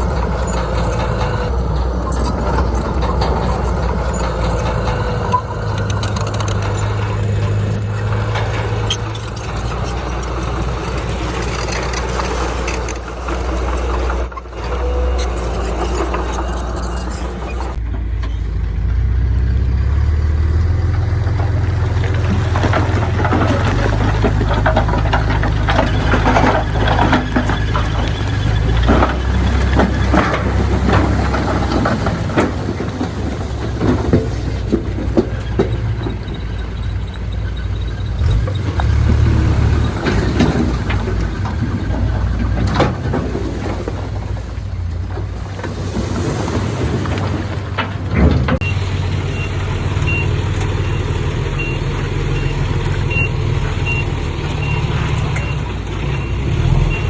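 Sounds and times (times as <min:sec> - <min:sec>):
diesel engine drone: 0:00.0 - 0:57.0
metallic clanks and knocks: 0:20.8 - 0:48.7
reversing beeper: 0:48.6 - 0:57.0.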